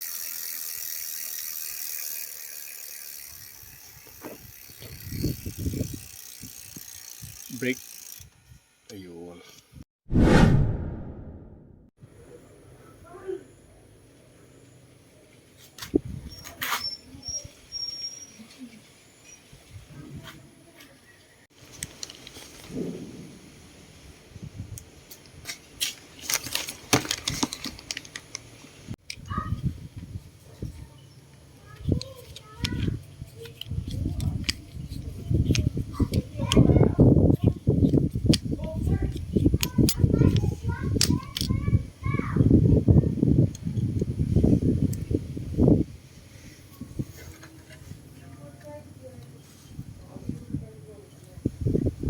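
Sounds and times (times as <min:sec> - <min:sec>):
bike hub ratchet ticking: 0:00.0 - 0:09.0.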